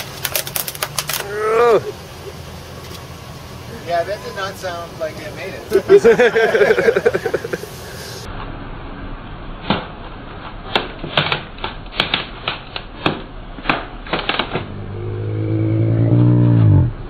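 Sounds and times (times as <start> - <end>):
plastic keyboard cracking: 0.0 - 1.3, 10.7 - 14.7
truck engine hum: 0.0 - 10.8, 14.3 - 17.0.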